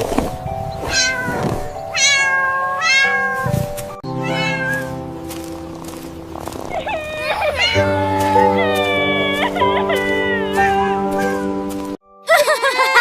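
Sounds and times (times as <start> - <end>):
background music: 0.0 - 13.0
cat meowing: 0.9 - 3.4, 4.2 - 4.9, 6.7 - 11.4.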